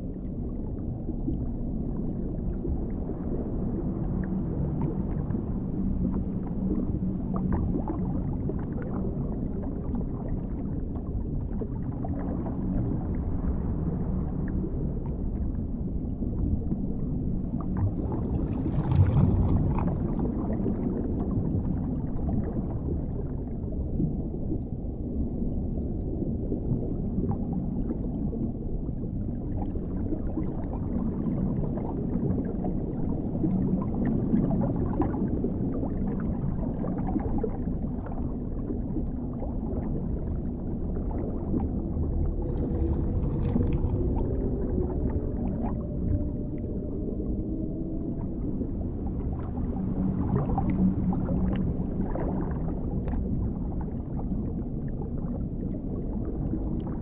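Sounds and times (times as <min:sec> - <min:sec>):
underwater rumbling water: 0:00.0 - 0:57.0
low moaning tone: 0:25.1 - 0:57.0.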